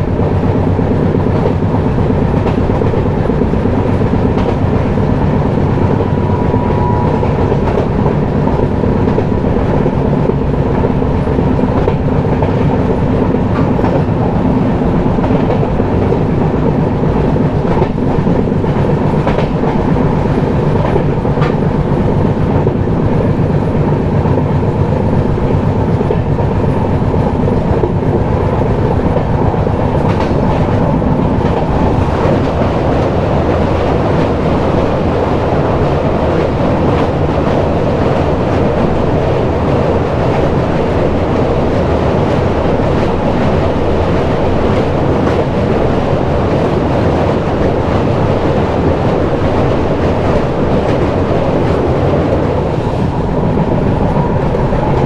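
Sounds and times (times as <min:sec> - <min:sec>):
train coaches rumbling on track: 0:00.0 - 0:55.0.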